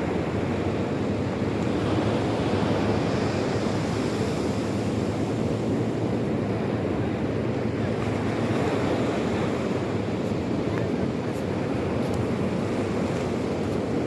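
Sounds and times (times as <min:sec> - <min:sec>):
sea surf washing on shore: 0:00.0 - 0:14.0.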